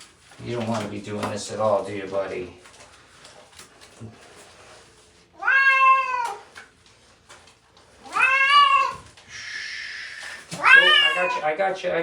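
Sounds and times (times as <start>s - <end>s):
cat meowing in distress: 5.4s - 6.5s, 8.0s - 9.1s, 10.6s - 11.5s.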